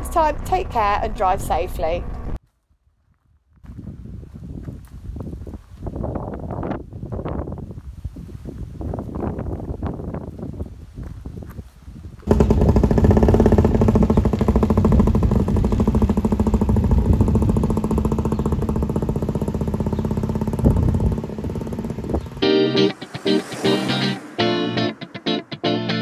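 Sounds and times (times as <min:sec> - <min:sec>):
wind noise on microphone: 0:03.1 - 0:18.8, 0:20.5 - 0:25.6
two-stroke engine running: 0:12.3 - 0:22.4.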